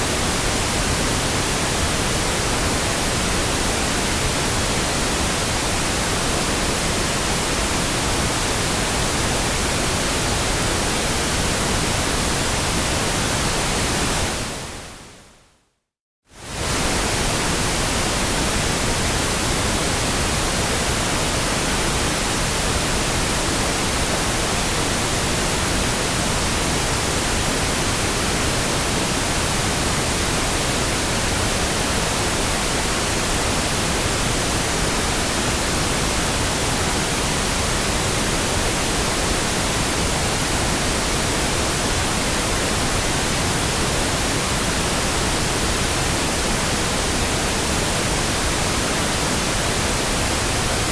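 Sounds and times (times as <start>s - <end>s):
steady pink noise hiss: 0.0s - 50.9s.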